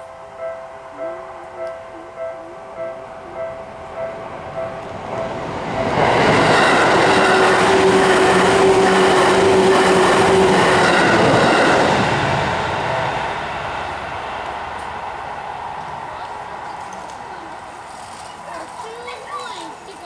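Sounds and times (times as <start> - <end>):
level crossing warning bell: 0.0 - 19.9
train wheels rushing on rails: 0.0 - 20.0.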